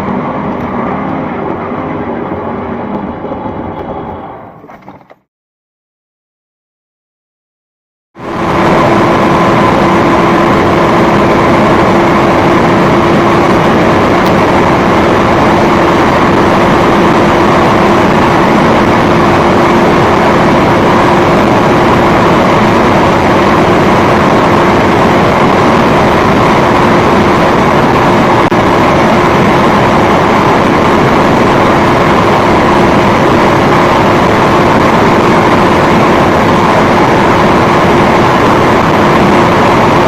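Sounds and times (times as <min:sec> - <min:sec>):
car engine drone: 0:00.0 - 0:05.2, 0:08.2 - 0:40.0
road and wind noise: 0:00.0 - 0:05.2, 0:08.2 - 0:40.0.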